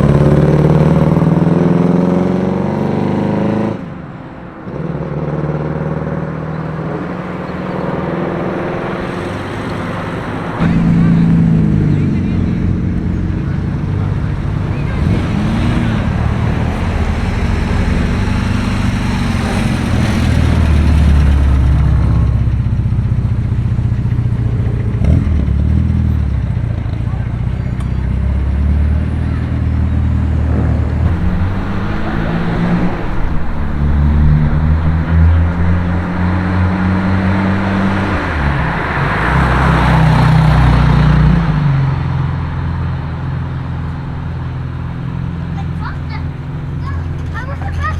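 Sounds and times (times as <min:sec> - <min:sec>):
rushing road noise: 0:00.0 - 0:47.9
car engine idling: 0:31.0 - 0:40.1, 0:42.3 - 0:47.9.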